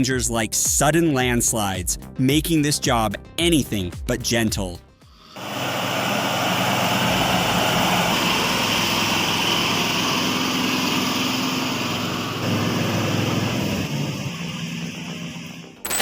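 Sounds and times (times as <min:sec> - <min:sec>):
truck engine running: 0:05.4 - 0:16.0.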